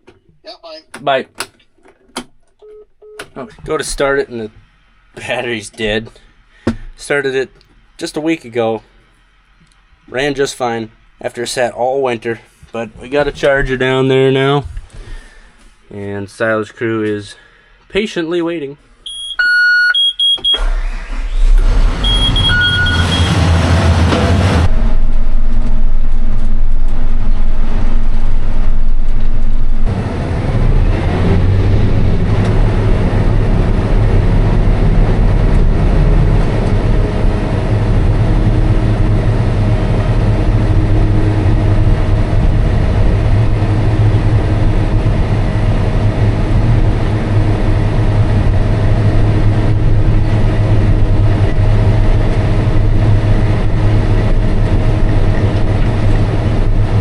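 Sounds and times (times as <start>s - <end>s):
loud rumble: 21.0s - 57.0s
farm machine engine humming: 31.5s - 57.0s.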